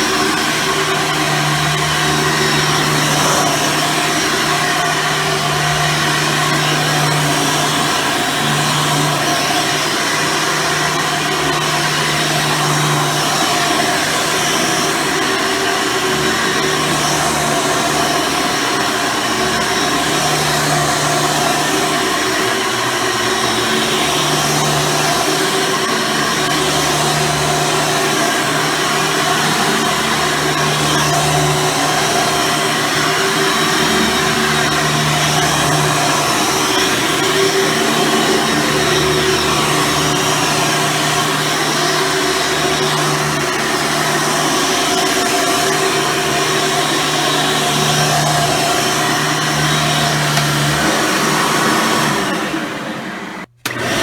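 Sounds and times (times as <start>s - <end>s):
upright vacuum cleaner running: 0.0s - 54.0s.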